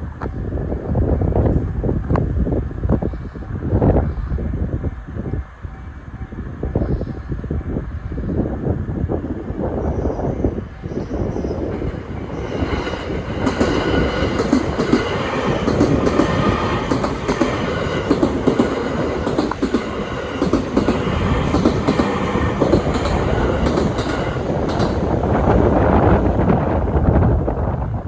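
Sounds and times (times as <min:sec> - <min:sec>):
train wheels clattering over rails: 0:11.6 - 0:26.4.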